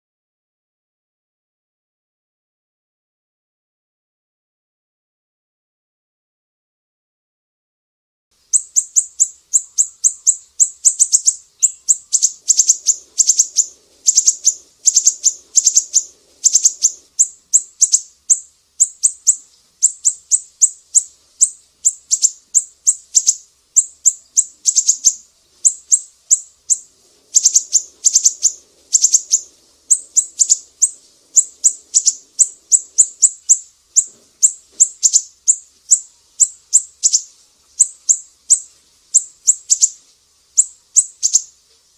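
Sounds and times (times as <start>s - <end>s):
songbird chirping: 8.4s - 41.9s.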